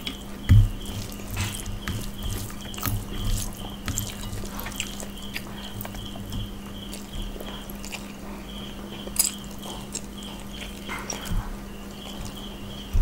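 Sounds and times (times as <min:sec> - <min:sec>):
steady low hum: 0:00.0 - 0:13.0
wet chewing and lip smacks: 0:00.9 - 0:08.3, 0:09.0 - 0:11.4.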